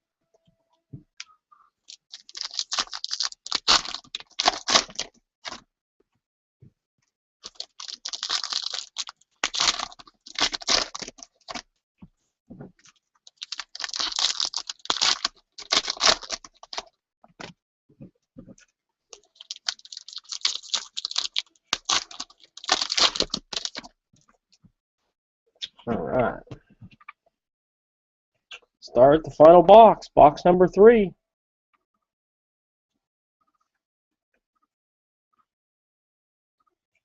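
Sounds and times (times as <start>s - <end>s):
card packs crinkling and tearing: 1.9s - 5.6s, 7.4s - 11.6s, 13.3s - 16.9s, 19.2s - 23.9s.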